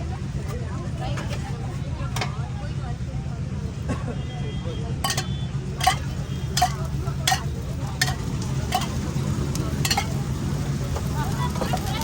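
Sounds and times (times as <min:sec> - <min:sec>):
metal spatula scraping griddle: 0:05.1 - 0:09.2, 0:09.8 - 0:10.2.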